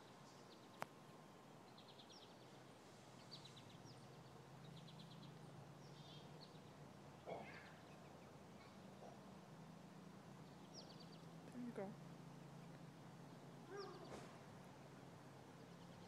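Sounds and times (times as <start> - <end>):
faint bird chirps: 0.0 - 9.4, 13.2 - 14.4
brief rustle: 14.0 - 14.5.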